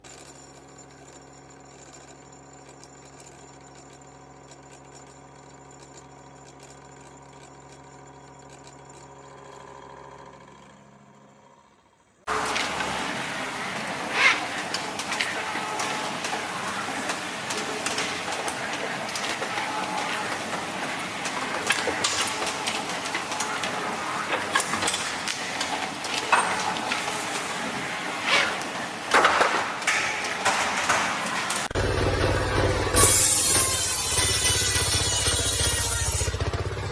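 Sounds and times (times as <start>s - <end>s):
machine motor humming: 7.5s - 36.7s
clicks and knocks: 29.1s - 31.8s.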